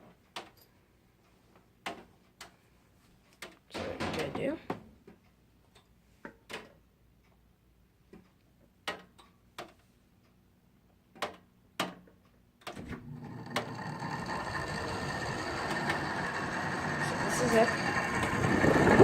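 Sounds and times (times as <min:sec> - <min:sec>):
air conditioner humming: 0:12.6 - 0:19.0.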